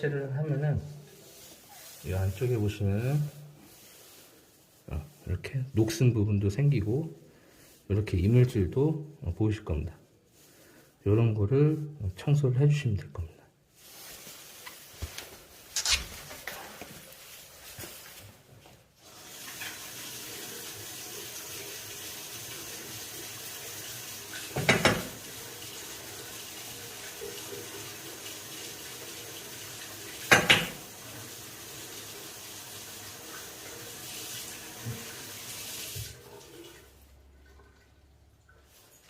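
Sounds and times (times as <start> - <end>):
water running from a tap: 19.0 - 39.0.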